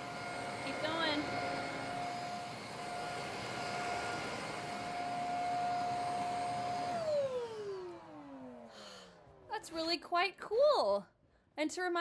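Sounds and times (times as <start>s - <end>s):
handheld vacuum cleaner whine: 0.0s - 9.5s.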